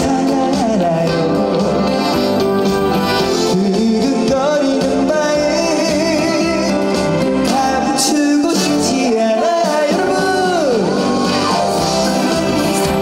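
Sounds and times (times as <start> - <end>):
man singing: 0.0 - 2.3, 3.3 - 13.0
instrumental accompaniment: 0.0 - 13.0.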